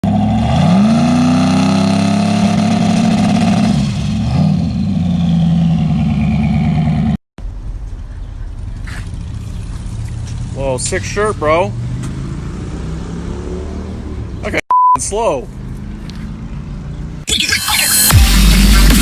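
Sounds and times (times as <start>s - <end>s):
race truck engine revving hard: 0.0s - 5.2s.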